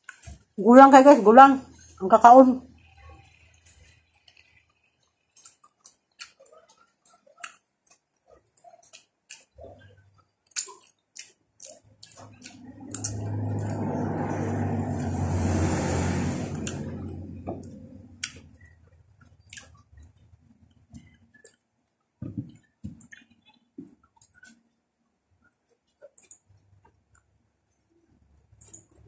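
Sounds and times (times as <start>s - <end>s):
chewing with wet mouth clicks: 3.6s - 13.8s, 18.2s - 21.6s, 22.5s - 24.6s
rumbling noise with low hum: 12.3s - 18.8s.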